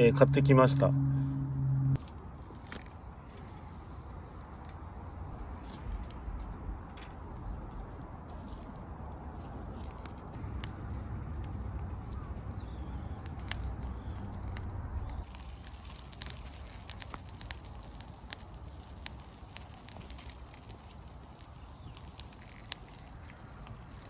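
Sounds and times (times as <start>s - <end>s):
low rumble: 0.0s - 2.0s, 10.4s - 15.2s
campfire crackling and popping: 10.2s - 24.0s.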